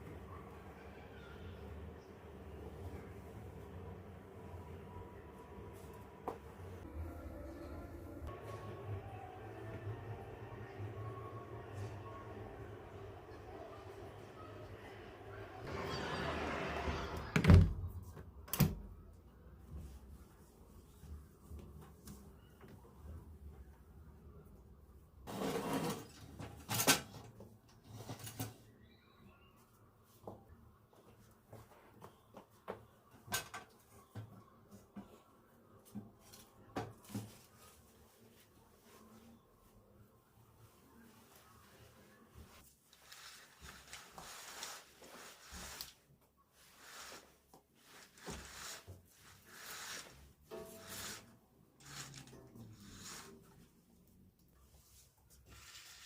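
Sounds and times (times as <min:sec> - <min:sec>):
rubbing and rustling: 0:40.6 - 0:53.9.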